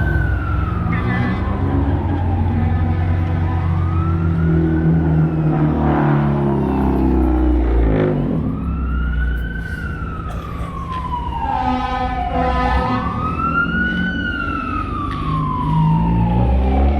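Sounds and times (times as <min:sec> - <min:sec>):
fire engine siren wailing: 0:00.0 - 0:16.9
truck engine rumbling: 0:00.0 - 0:16.9
horn blast: 0:11.5 - 0:13.3.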